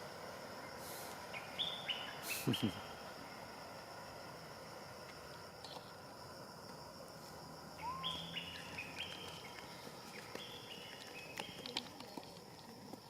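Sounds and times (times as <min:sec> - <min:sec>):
short high calls: 0:07.8 - 0:08.9
lower rising-and-falling call: 0:07.8 - 0:09.2.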